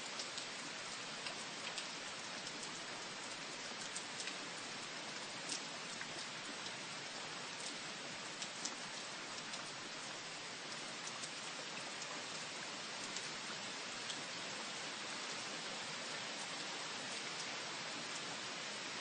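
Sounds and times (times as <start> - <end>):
steady rain hiss: 0.0 - 19.0
raindrops ticking: 0.2 - 12.4.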